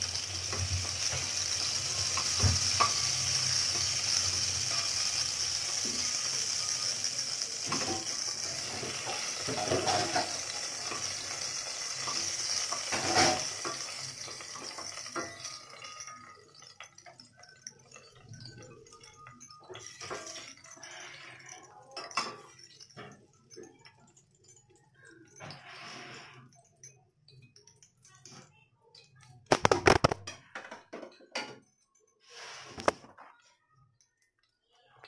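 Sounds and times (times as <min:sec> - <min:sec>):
utensils scraping metal pot: 0:00.0 - 0:23.1
vegetables sizzling in oil: 0:00.0 - 0:23.3.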